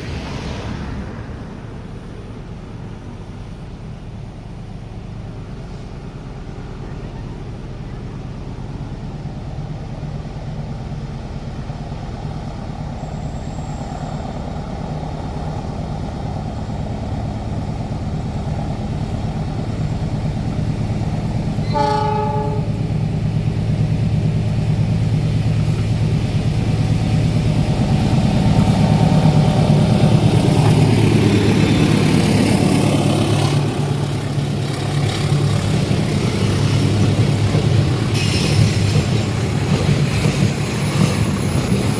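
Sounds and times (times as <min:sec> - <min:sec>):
diesel locomotive engine drone: 0:00.0 - 0:41.9
train horn blast: 0:21.6 - 0:22.8.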